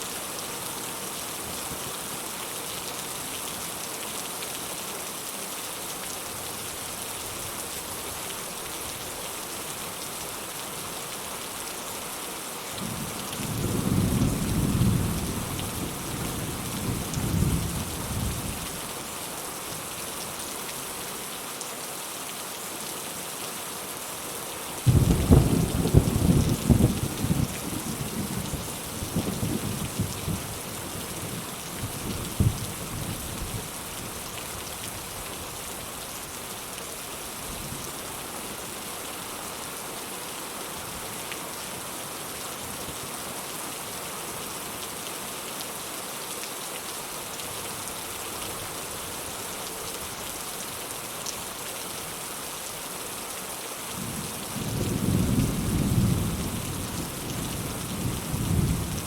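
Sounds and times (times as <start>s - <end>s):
steady rain: 0.0s - 59.0s
thunder rumbling: 24.9s - 28.5s.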